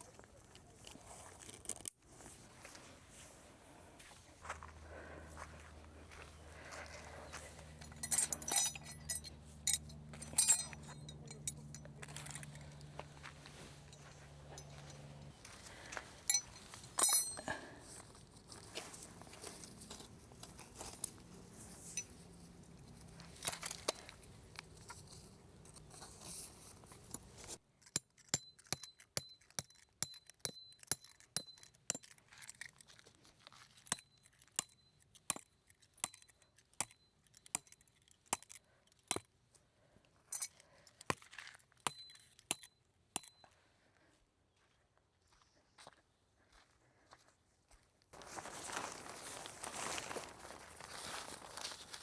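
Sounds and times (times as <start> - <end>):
small hard objects clinking: 7.8 - 12.8, 15.7 - 39.2.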